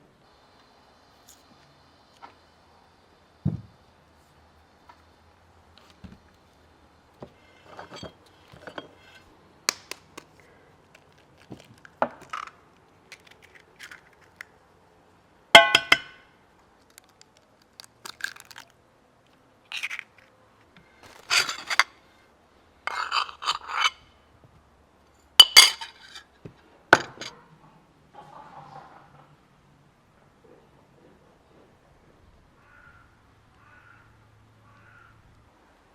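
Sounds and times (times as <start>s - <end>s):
dishes and utensils clinking: 7.7s - 9.2s, 15.6s - 16.2s, 21.2s - 21.9s, 22.9s - 24.0s, 25.4s - 26.2s, 27.0s - 27.3s.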